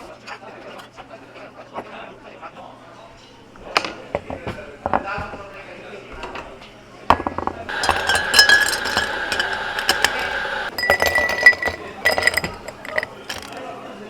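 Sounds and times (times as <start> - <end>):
high whine: 7.7 - 10.7
glass and ice clinking: 7.7 - 13.7.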